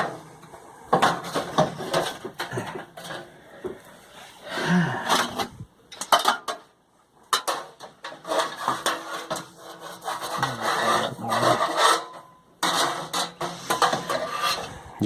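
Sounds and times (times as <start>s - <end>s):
metal scraping and clattering: 0.0s - 3.8s, 5.0s - 6.7s, 7.3s - 15.0s.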